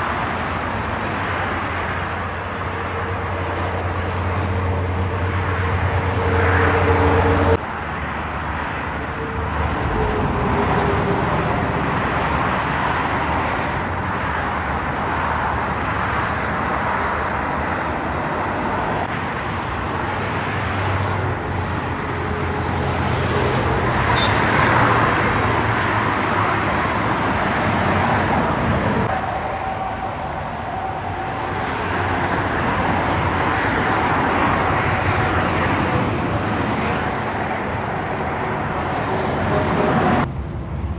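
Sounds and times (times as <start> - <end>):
highway traffic passing: 0.0 - 40.9
steady engine drone: 25.0 - 40.9.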